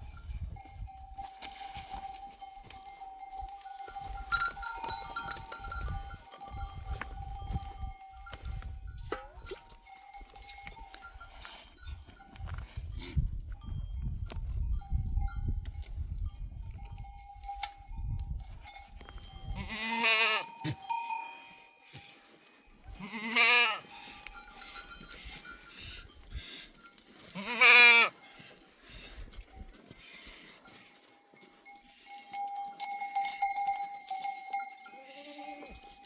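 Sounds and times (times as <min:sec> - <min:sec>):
animal bells clinking: 0:00.0 - 0:36.0
goats bleating: 0:19.6 - 0:20.9, 0:22.9 - 0:24.0, 0:27.3 - 0:28.2, 0:35.0 - 0:35.9.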